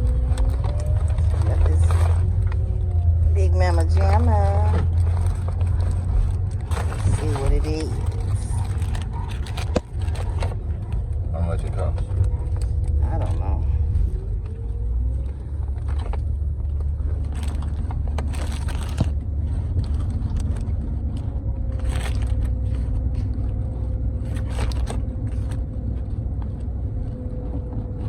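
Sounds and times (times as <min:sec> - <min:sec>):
steady low rumble: 0:00.0 - 0:28.0
paper wrapper crinkling: 0:04.6 - 0:10.7, 0:15.8 - 0:20.8, 0:24.2 - 0:25.6.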